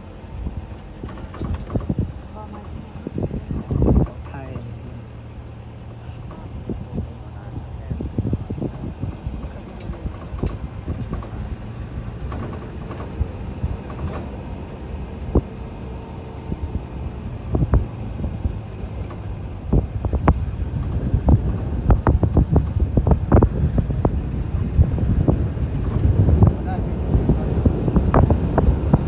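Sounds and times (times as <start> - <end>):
steady low rumble: 0.0 - 29.0
wind on microphone: 0.0 - 29.0
knocks and thumps: 0.8 - 4.9, 8.1 - 15.7.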